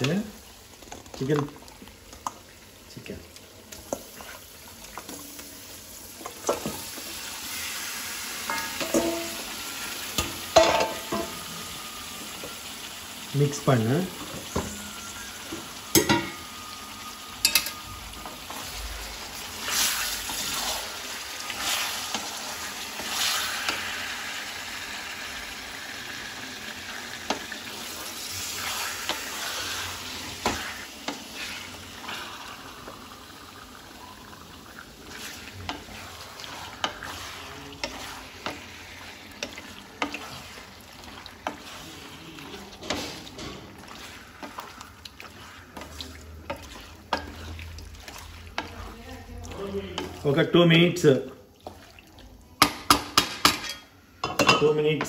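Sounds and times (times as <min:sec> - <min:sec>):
chicken sizzling in pan: 0:00.0 - 0:51.8
spatula scraping and knocking pan: 0:08.4 - 0:09.4, 0:35.1 - 0:40.6.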